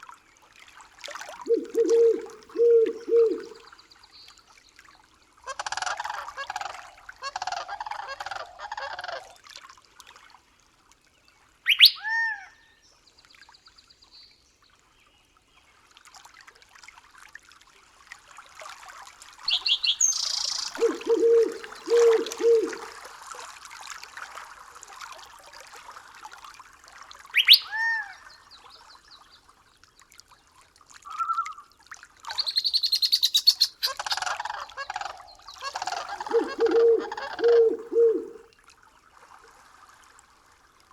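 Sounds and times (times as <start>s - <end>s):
low bird calls: 1.4s - 3.6s, 11.7s - 12.2s, 19.5s - 23.0s, 27.4s - 28.0s, 32.3s - 38.5s
birds chirping and trilling: 1.5s - 3.6s, 19.5s - 22.9s, 32.4s - 38.4s
sharp rising falling bird calls: 1.5s - 3.6s, 19.5s - 22.9s, 35.0s - 38.4s.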